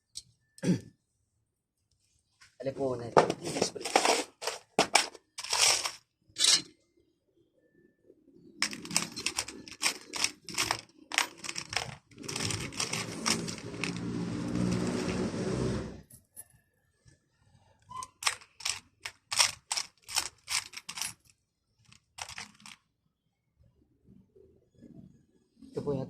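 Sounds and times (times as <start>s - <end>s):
small metal parts clattering: 3.4s - 6.7s, 8.6s - 15.2s, 18.0s - 22.8s
mechanical whirring: 8.6s - 16.0s.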